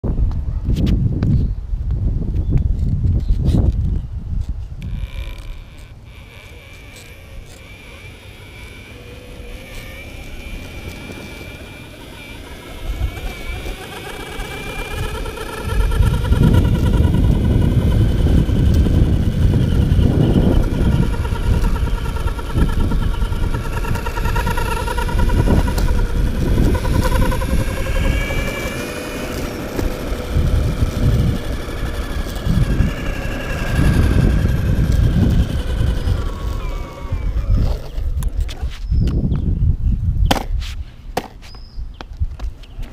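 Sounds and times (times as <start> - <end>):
electric skateboard belt whining: 4.8 - 38.6
low rumble: 7.4 - 38.3.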